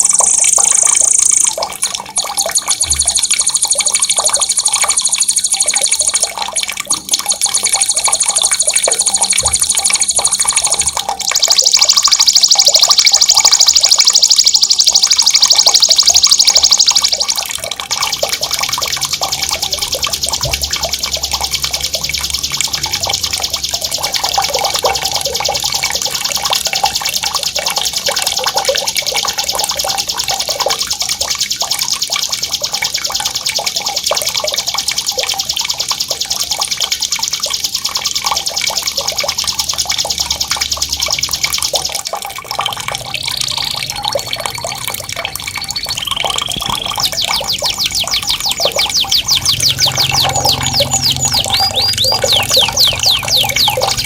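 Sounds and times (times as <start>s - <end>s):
bird whistled notes: 0.0s - 1.6s, 2.2s - 6.3s, 7.2s - 17.4s, 45.6s - 54.0s
songbird rapid high trill: 0.0s - 6.5s, 7.2s - 17.4s, 45.6s - 54.0s
running water: 0.0s - 54.0s.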